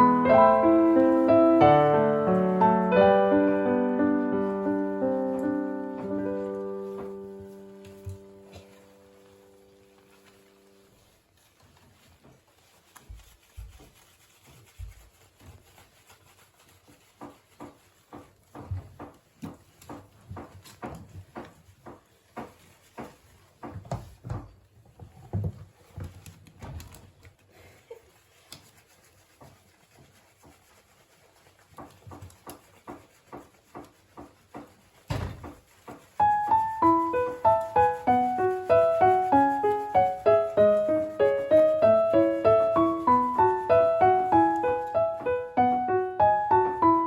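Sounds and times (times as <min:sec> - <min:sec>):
piano music: 0:00.0 - 0:10.8, 0:36.2 - 0:47.0
soft knocks and taps: 0:05.2 - 0:08.8, 0:17.2 - 0:26.9, 0:31.7 - 0:36.1
loud thump: 0:35.1 - 0:35.5.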